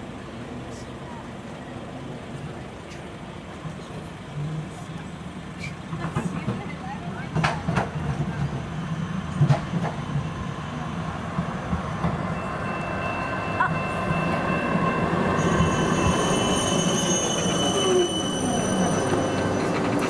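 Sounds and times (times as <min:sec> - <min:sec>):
rail vehicle rumbling past: 0:00.0 - 0:20.0
wheel squeal: 0:15.4 - 0:20.0.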